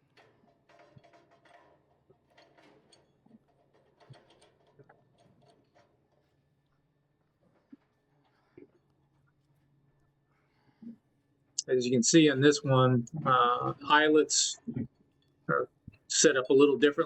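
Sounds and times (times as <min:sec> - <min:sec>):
low steady hum: 0:11.6 - 0:14.9, 0:15.5 - 0:17.0.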